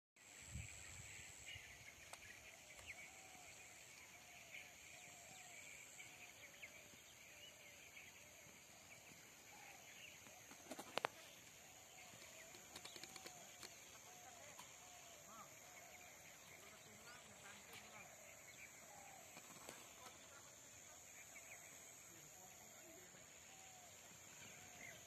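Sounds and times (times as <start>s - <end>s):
sharp clicks: 12.5s - 13.8s.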